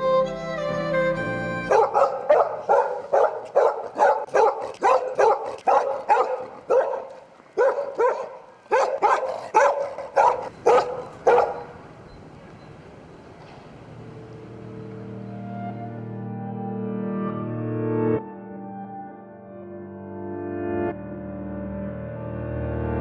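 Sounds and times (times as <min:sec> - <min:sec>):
dog barking: 0:01.7 - 0:11.8.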